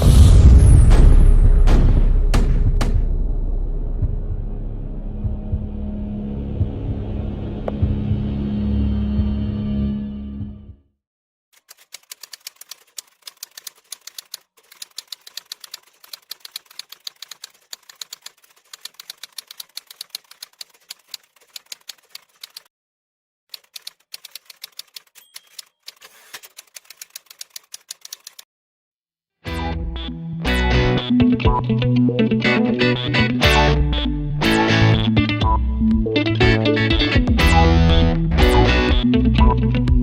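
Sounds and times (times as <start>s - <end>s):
typewriter keystrokes clacking: 11.6s - 22.7s, 23.5s - 28.4s.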